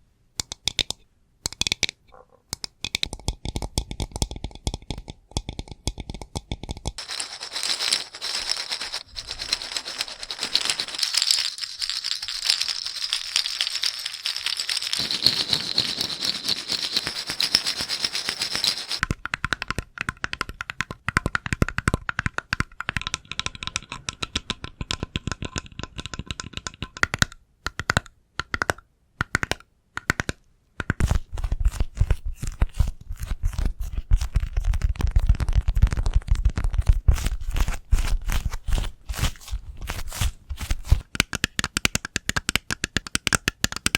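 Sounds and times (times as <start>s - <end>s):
crackling rattle: 7.0s - 19.0s
scratching on objects: 7.0s - 19.0s.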